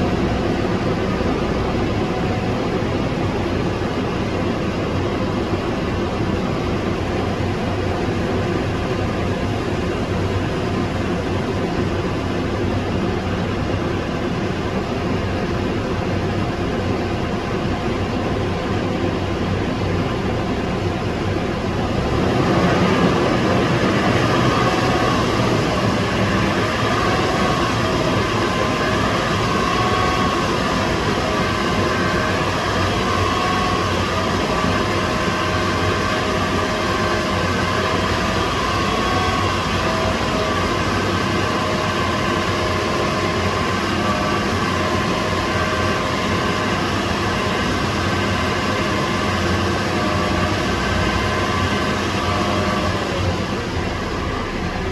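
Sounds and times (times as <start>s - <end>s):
car engine running from inside: 18.7s - 54.9s.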